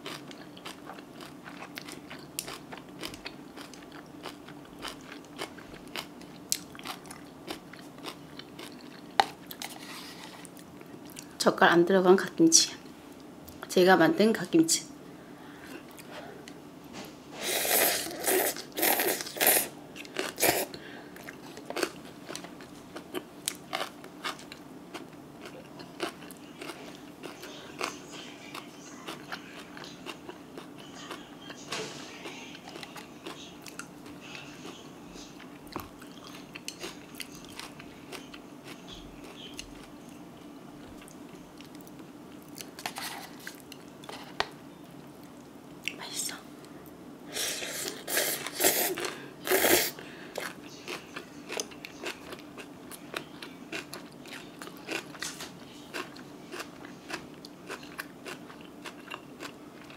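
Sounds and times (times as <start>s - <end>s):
quiet chewing with small clicks: 0.0s - 11.3s, 20.0s - 47.0s, 50.3s - 59.9s.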